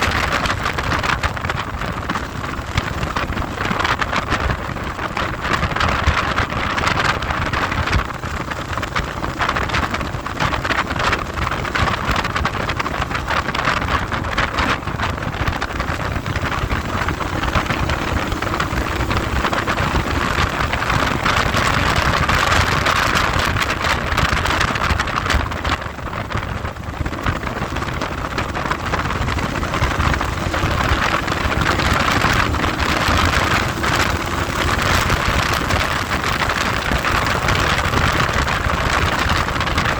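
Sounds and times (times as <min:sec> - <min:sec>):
wind buffeting microphone: 0:00.0 - 0:39.9
faint engine rising in pitch: 0:27.1 - 0:38.9.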